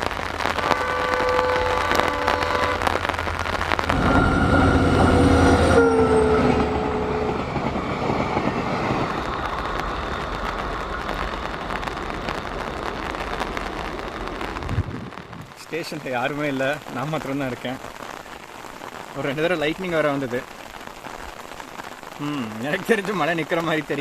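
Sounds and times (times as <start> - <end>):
rain: 0.0 - 24.0
train horn: 0.5 - 3.1, 3.8 - 7.7
train rumbling past: 0.8 - 15.2.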